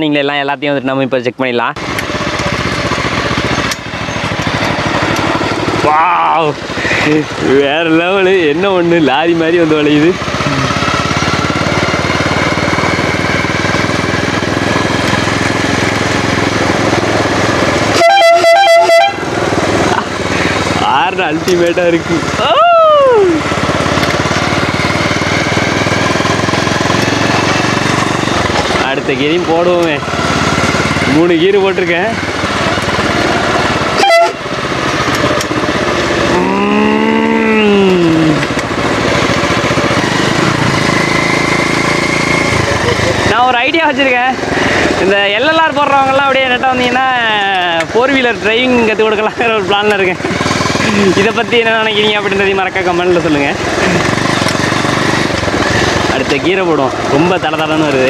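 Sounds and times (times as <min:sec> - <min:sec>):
small engine running: 0:01.6 - 0:58.0
vehicle horn short beeps: 0:18.0 - 0:19.2, 0:34.0 - 0:34.4.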